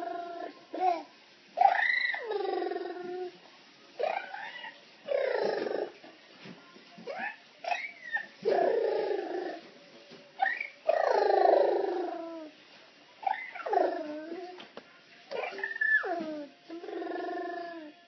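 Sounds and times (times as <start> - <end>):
long wavering vocal calls: 1.6 - 3.4, 4.0 - 6.0, 10.4 - 12.5, 15.4 - 18.0
squeaky vocal glides: 10.4 - 12.5, 15.3 - 18.0.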